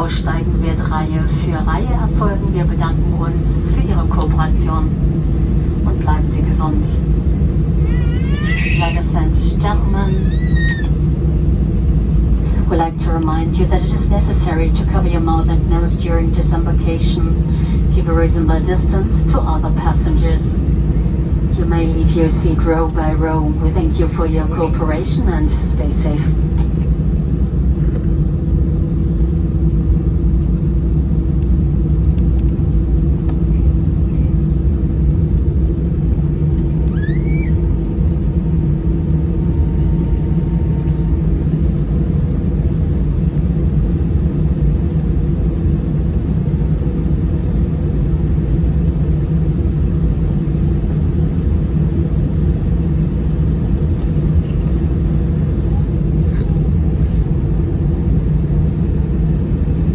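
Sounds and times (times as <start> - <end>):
aircraft cabin rumble and hum: 0.0 - 59.9
rising squeak: 36.9 - 37.6.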